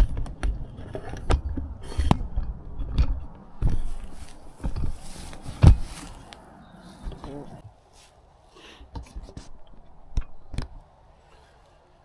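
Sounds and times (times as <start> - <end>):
wood knocking and scraping: 0.0 - 7.6
rustling: 0.0 - 12.0.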